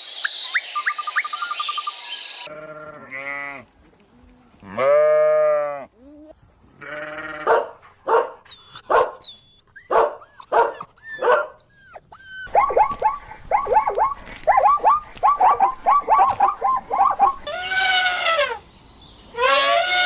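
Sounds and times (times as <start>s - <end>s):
dog barking: 7.4s - 9.2s, 9.9s - 11.6s, 12.5s - 17.4s
dog yapping high: 7.4s - 17.5s.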